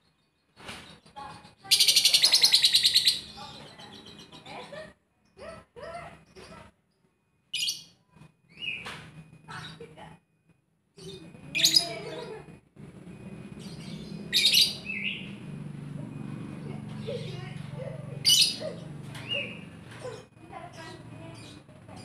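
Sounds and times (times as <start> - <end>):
bird chirping shrilly: 13.5 - 15.5, 18.2 - 19.9.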